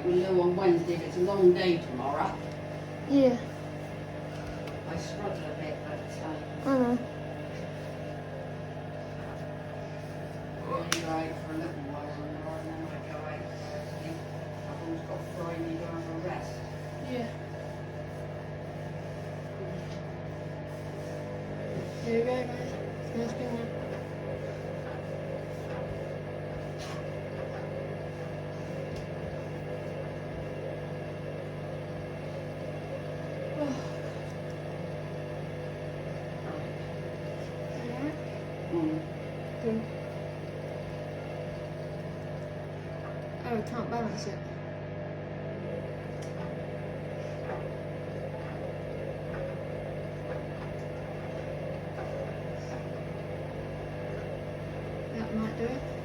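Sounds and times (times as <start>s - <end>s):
washing machine drum humming: 0.0s - 56.0s.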